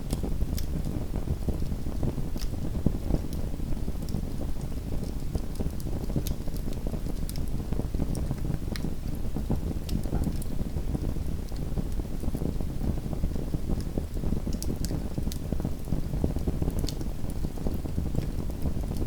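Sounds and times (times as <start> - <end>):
wood fire crackling: 0.0 - 0.8, 13.4 - 19.0
fire popping and snapping: 0.0 - 1.0, 2.0 - 12.5, 13.4 - 19.0.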